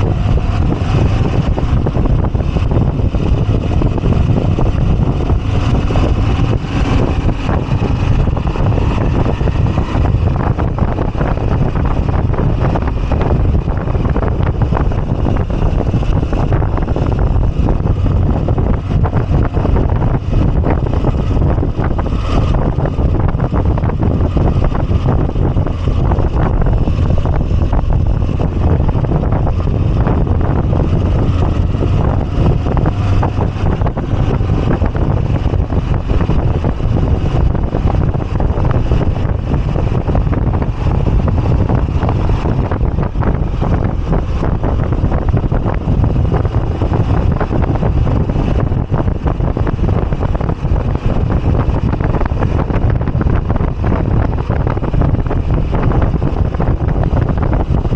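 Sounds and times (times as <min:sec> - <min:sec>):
motorcycle engine running: 0:00.0 - 0:57.9
wind rushing over microphone: 0:00.0 - 0:57.9.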